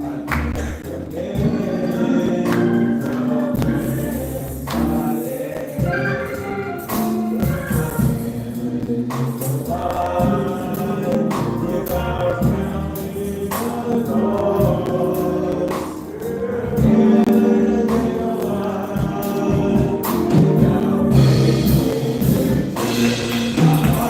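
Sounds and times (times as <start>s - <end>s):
gospel choir singing: 0.0s - 24.0s
instrumental backing: 0.0s - 24.0s.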